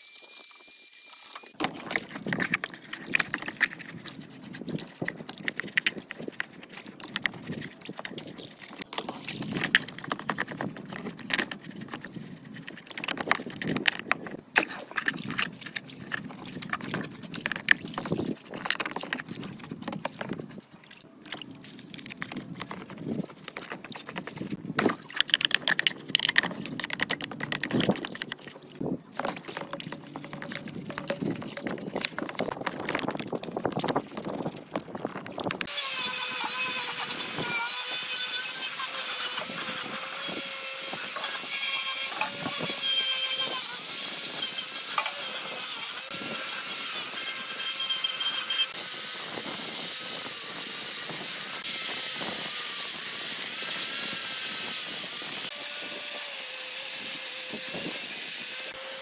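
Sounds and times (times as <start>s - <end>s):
clicks and knocks of handling: 22.0s - 34.2s.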